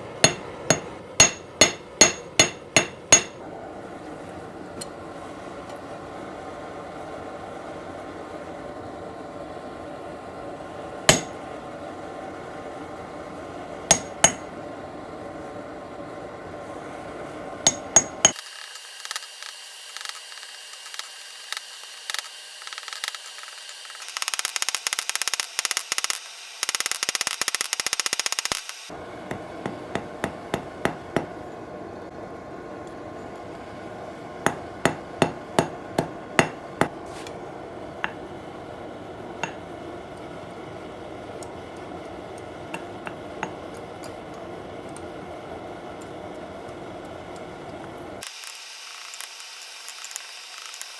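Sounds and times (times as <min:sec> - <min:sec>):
hammer striking hot steel on anvil: 0:00.0 - 0:03.4, 0:11.1 - 0:11.4, 0:13.9 - 0:14.5, 0:17.7 - 0:31.4, 0:34.5 - 0:37.0, 0:39.4 - 0:39.6.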